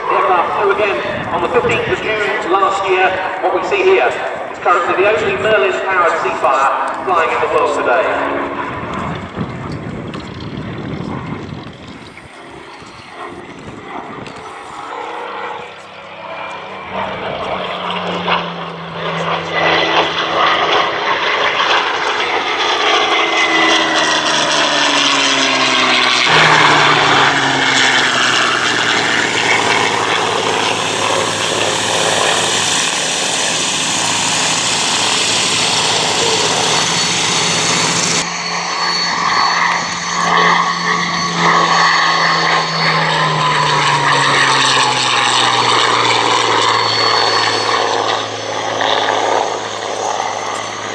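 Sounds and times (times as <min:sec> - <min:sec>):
propeller plane flying past: 0:00.0 - 0:50.9.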